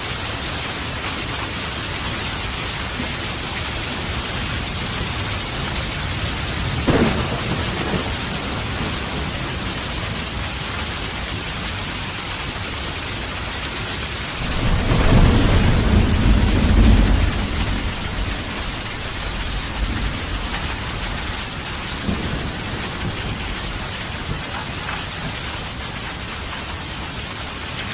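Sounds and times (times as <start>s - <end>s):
steady rain falling: 0.0s - 27.9s
low rolling thunder rumble: 0.2s - 12.1s, 14.3s - 26.9s
sharp thunder crack: 6.6s - 9.7s, 14.4s - 21.0s.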